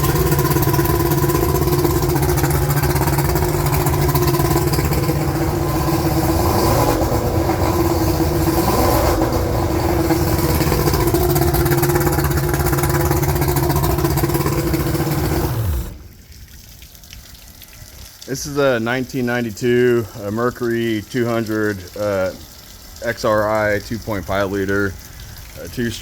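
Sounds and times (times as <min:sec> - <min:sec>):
outboard motor running: 0:00.0 - 0:16.0
outboard motor winding down: 0:00.0 - 0:16.0
person talking: 0:18.3 - 0:22.4, 0:23.0 - 0:25.0, 0:25.6 - 0:26.0.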